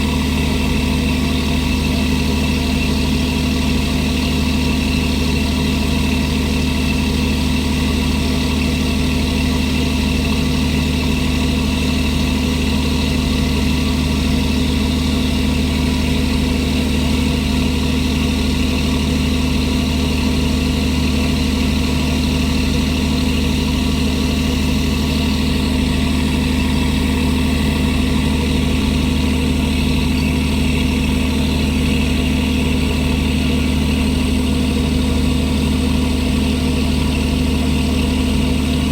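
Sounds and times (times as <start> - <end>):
diesel machinery droning: 0.0 - 38.9.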